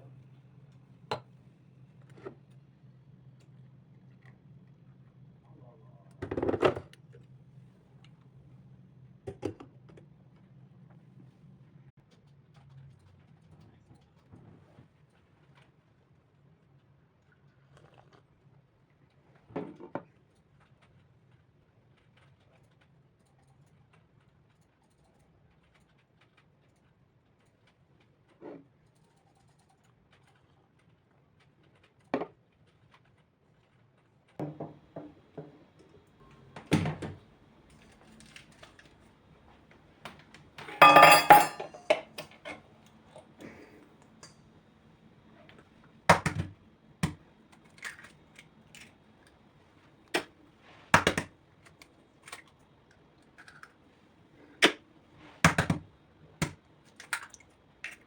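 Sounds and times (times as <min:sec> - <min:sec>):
dishes knocking and clinking: 0:34.4 - 0:35.6, 0:40.1 - 0:42.6.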